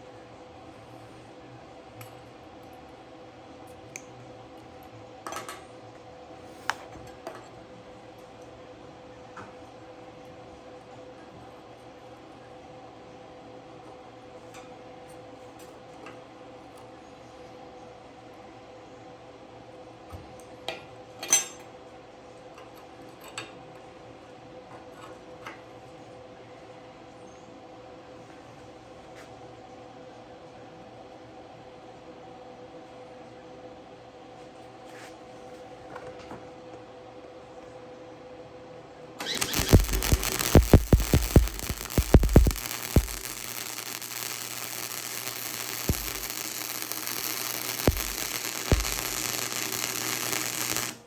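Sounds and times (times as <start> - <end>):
steady electrical hum: 39.2 - 51.0.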